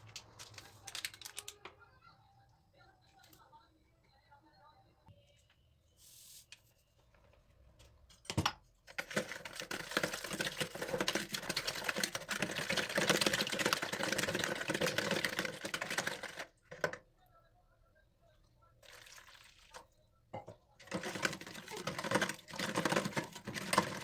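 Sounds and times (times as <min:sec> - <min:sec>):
rapid scrubbing with clicks: 0:20.8 - 0:24.0.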